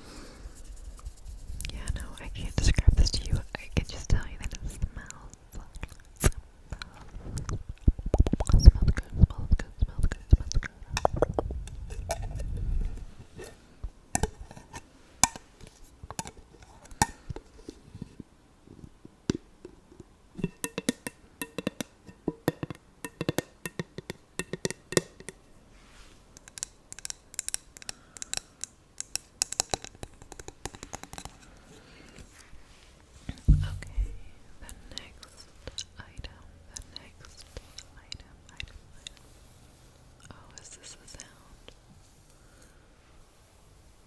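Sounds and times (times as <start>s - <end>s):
fingernails tapping on glass jar: 33.5s - 34.3s
handling rumble: 33.5s - 34.9s.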